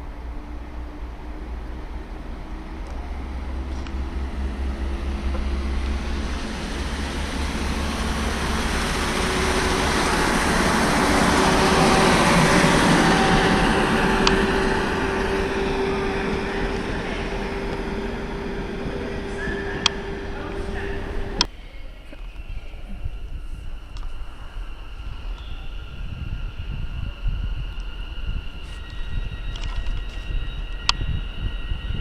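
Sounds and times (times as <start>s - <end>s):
steady tone: 0.0s - 21.6s
train passing rumble: 0.0s - 32.0s.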